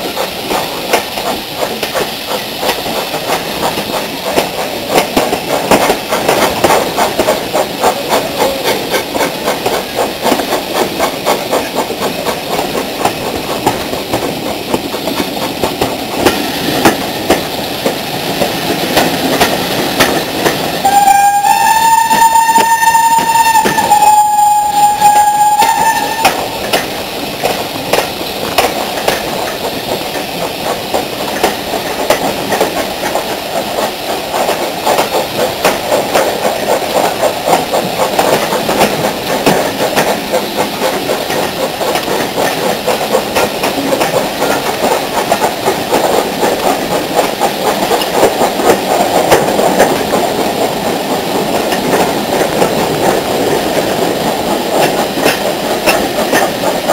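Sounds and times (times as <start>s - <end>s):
train beating and clatter: 0.0s - 56.9s
steam locomotive whistle: 20.8s - 26.6s.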